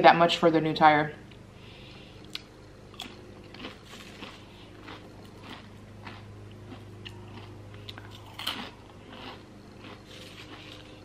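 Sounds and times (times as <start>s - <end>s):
chewing crunchy chips: 2.2s - 11.0s.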